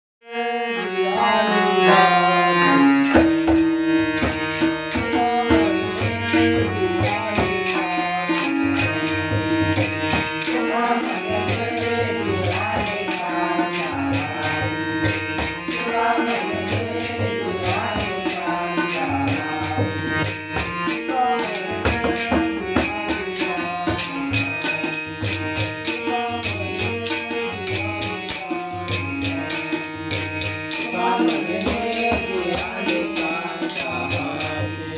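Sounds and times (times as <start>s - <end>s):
sustained melodic instrument: 0.3s - 34.9s
jingling hand cymbals: 2.8s - 34.9s
drum rhythm: 3.0s - 10.6s.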